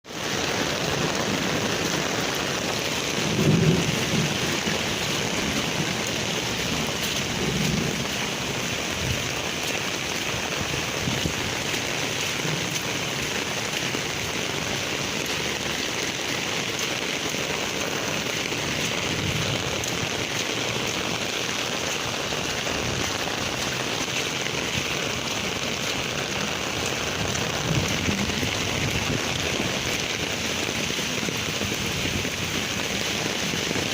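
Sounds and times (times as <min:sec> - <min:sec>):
heavy rain pouring: 0:00.0 - 0:33.9
low rumbles: 0:24.4 - 0:29.8.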